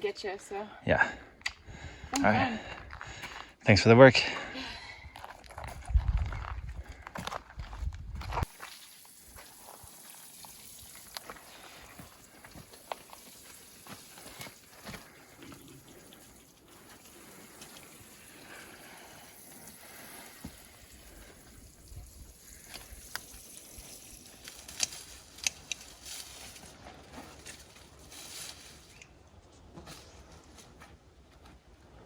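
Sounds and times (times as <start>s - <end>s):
water trickling on plants: 8.4s - 26.8s
small clicks and rustles of handling: 22.7s - 30.7s.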